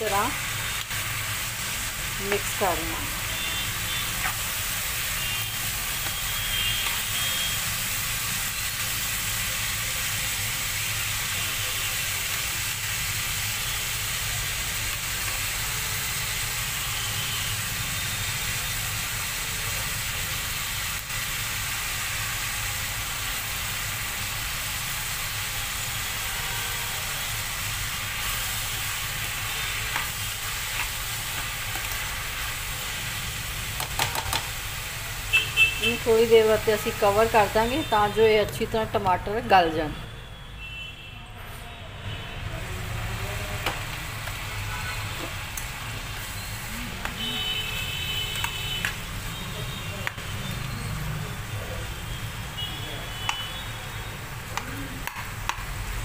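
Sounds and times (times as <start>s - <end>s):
vegetables sizzling in oil: 0.0s - 40.0s, 42.4s - 56.0s
spoon stirring in a pan: 28.9s - 32.3s.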